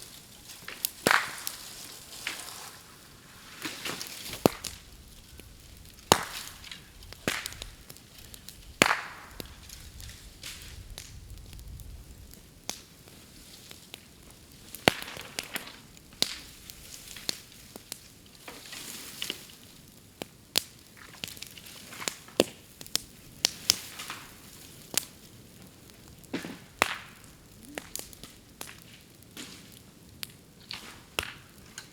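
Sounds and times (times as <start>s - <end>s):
bamboo bonfire crackling: 0.0s - 31.9s
sharp pops of splitting stems: 0.7s - 1.6s, 3.6s - 4.8s, 5.8s - 9.8s, 26.3s - 28.8s.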